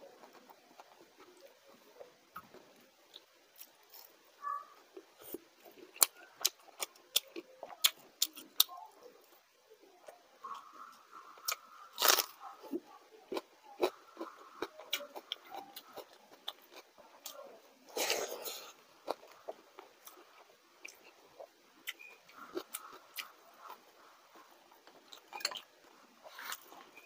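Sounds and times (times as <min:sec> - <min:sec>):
crunchy chewing of fried food: 0:00.0 - 0:27.0
soft chewing: 0:00.0 - 0:27.0
crunchy bite into raw onion: 0:11.4 - 0:12.4
wet mouthful of rice: 0:17.9 - 0:18.8.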